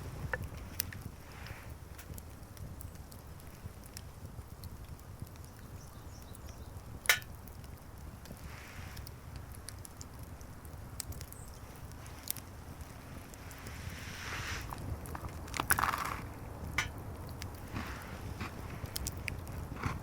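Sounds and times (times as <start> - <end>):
wood fire crackling: 0.0 - 20.0
sharp pop of fire: 7.0 - 7.4.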